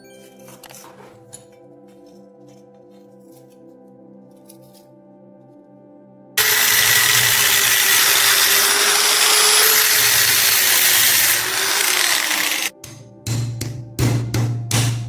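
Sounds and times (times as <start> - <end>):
power tool grinding metal: 6.4 - 12.7.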